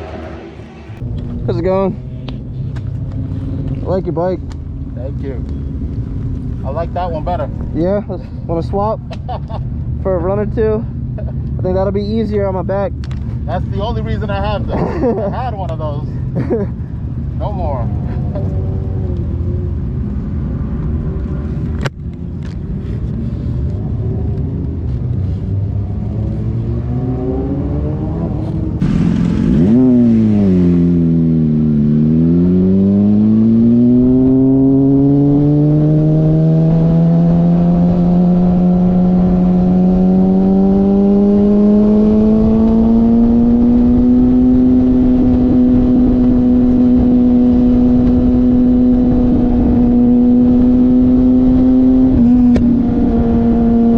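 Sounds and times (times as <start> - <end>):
motorcycle engine: 0.0 - 7.8, 24.9 - 53.9.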